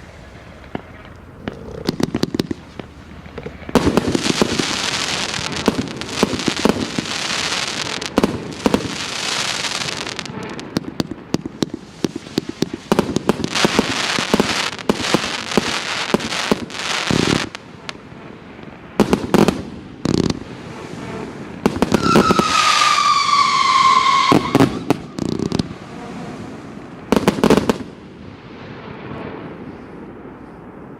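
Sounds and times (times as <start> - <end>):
firework bangs: 0.0 - 30.9
firework whistle falling: 21.8 - 25.7.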